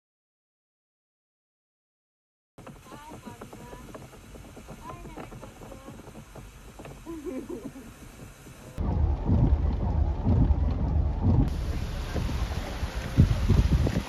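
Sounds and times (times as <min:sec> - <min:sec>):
wind buffeting microphone: 0:02.8 - 0:14.0.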